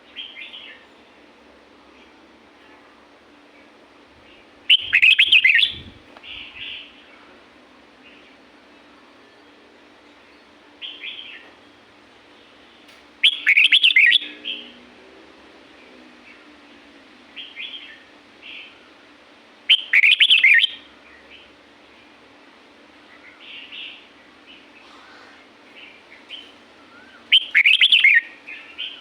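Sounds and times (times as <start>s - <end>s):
soft bird chirps: 4.3s - 7.3s, 23.1s - 29.0s
bird warbling: 4.7s - 6.7s, 13.2s - 14.2s, 26.3s - 29.0s.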